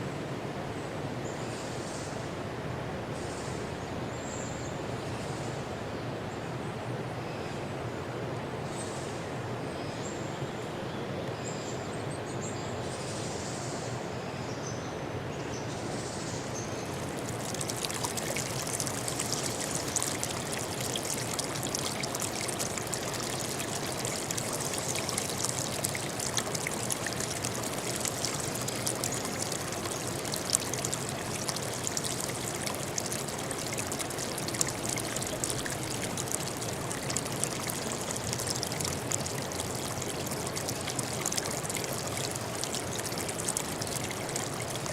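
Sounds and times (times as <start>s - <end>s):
stream splashing over rocks: 16.8s - 44.9s.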